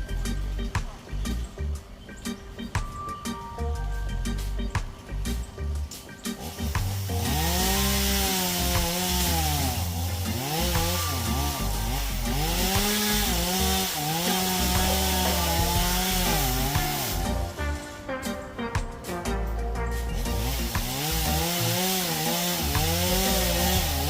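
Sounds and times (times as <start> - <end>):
chainsaw cutting wood: 5.9 - 17.8, 20.0 - 24.0.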